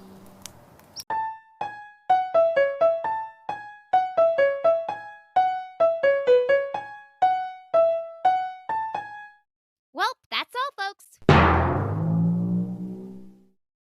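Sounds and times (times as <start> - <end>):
keyboard melody: 1.1 - 9.4.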